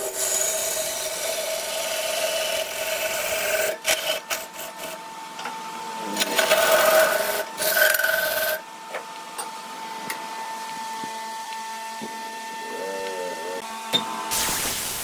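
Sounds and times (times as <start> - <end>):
turning tool scraping wood: 0.0 - 5.0, 6.2 - 8.6
lathe motor whine: 0.0 - 14.3.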